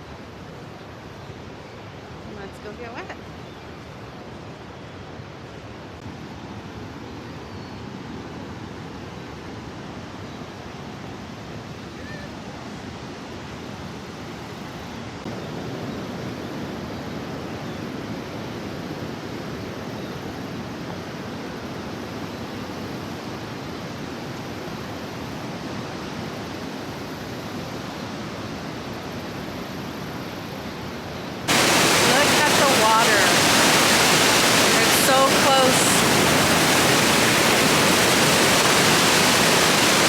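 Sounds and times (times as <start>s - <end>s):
waterfall rushing: 31.5s - 40.0s.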